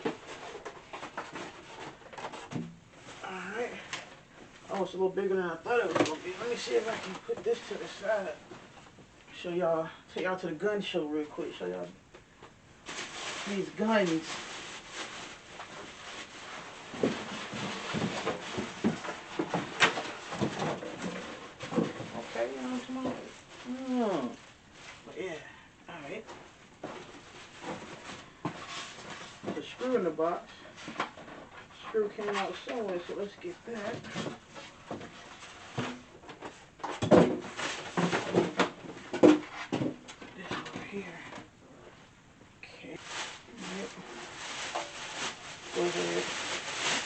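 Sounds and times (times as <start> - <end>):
cardboard packaging rubbing and knocking: 0.0 - 3.2, 12.8 - 25.1, 33.6 - 40.0, 43.0 - 47.0.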